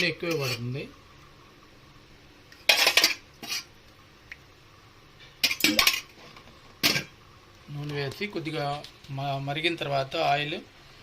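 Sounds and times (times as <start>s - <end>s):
metal cookware clattering: 0.0s - 0.8s, 2.6s - 3.7s, 5.4s - 7.2s.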